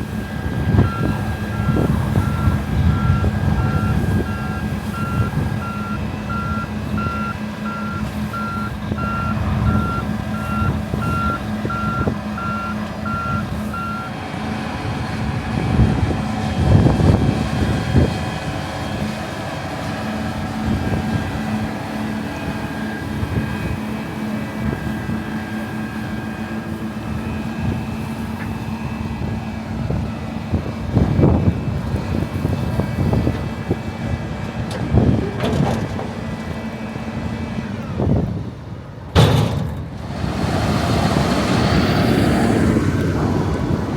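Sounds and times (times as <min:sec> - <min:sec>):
machine engine running: 0:00.0 - 0:34.3
reversing alarm beeping: 0:00.1 - 0:14.2.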